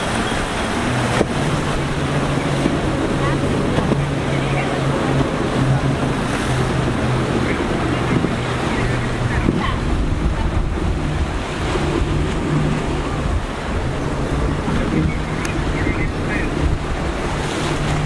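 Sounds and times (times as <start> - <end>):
boat engine low drone: 0.0 - 18.0
rough surf breaking: 0.0 - 18.0
wind buffeting microphone: 0.0 - 18.0.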